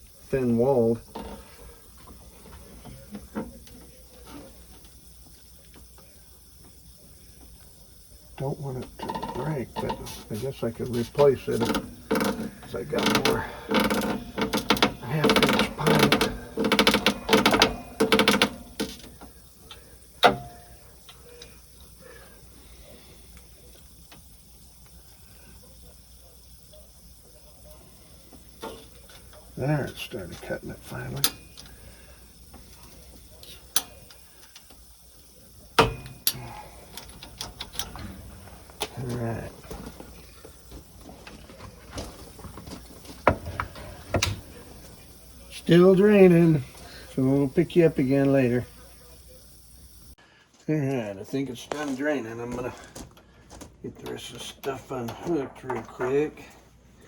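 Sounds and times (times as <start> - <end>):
pipe cutter clicking and scraping: 8.8 - 21.5, 35.8 - 38.9.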